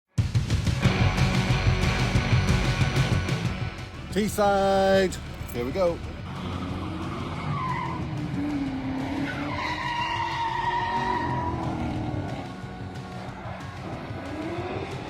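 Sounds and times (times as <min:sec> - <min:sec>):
engine revving hard: 0:06.2 - 0:12.5, 0:13.8 - 0:15.0
tyres squealing: 0:06.6 - 0:12.0.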